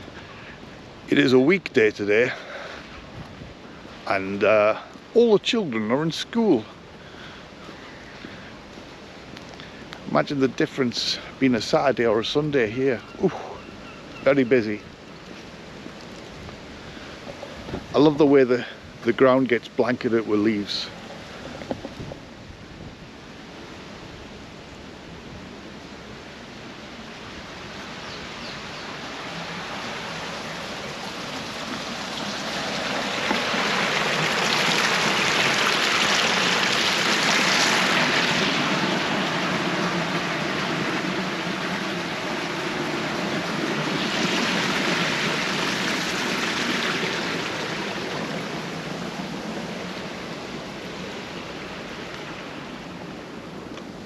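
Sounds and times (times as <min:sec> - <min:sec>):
running water rushing: 0:00.0 - 0:54.0.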